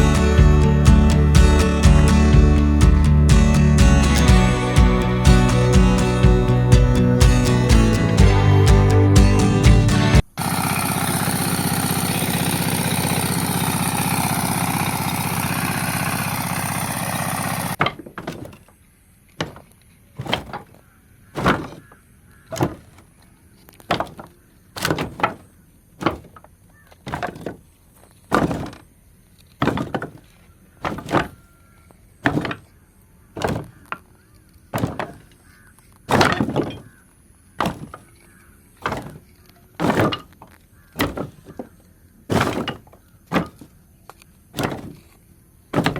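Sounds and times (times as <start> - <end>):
music: 0.0 - 10.2
sharp knocks: 11.9 - 18.7, 19.4 - 20.8, 21.4 - 23.0, 23.9 - 26.5, 27.1 - 27.6, 28.3 - 28.8, 29.6 - 30.2, 30.8 - 31.4, 32.2 - 32.7, 33.4 - 34.0, 34.8 - 35.4, 36.1 - 37.0, 37.6 - 38.2, 38.8 - 43.7, 44.6 - 45.9.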